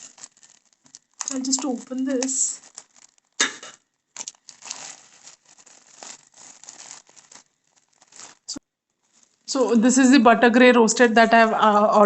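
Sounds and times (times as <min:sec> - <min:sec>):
packaging crinkling and rustling: 0:00.0 - 0:09.5
packaging ripping: 0:00.0 - 0:09.5.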